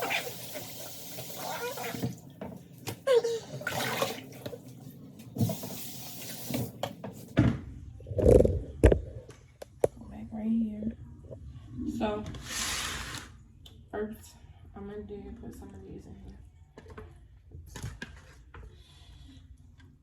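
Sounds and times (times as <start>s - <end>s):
water running from a tap: 0.0s - 2.3s, 3.6s - 4.6s, 5.3s - 6.8s.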